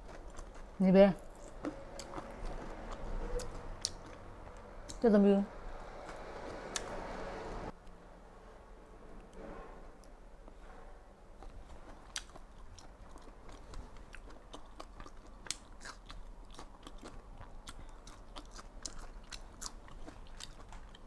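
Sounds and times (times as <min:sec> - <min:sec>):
crunchy chewing: 0:00.0 - 0:05.0, 0:05.8 - 0:07.3, 0:11.4 - 0:21.0.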